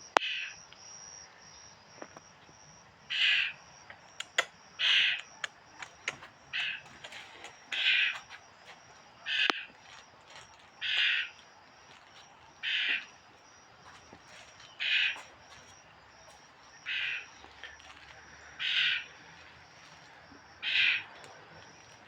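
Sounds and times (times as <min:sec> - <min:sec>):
bird giving harsh calls: 0:04.2 - 0:08.3, 0:09.2 - 0:09.7, 0:10.8 - 0:11.4, 0:12.6 - 0:13.1, 0:14.7 - 0:15.3, 0:16.8 - 0:17.4, 0:18.6 - 0:19.1, 0:20.6 - 0:21.2.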